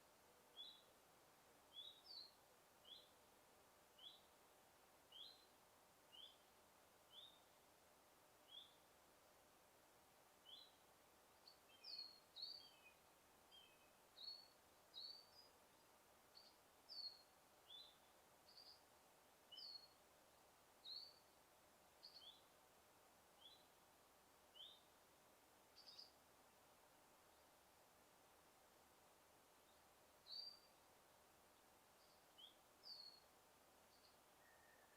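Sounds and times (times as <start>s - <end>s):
small birds chirping: 0.0s - 1.0s, 1.6s - 4.4s, 5.0s - 7.7s, 8.4s - 8.9s, 10.4s - 22.6s, 23.2s - 26.3s, 29.4s - 34.9s
faint steady hiss: 0.0s - 34.9s.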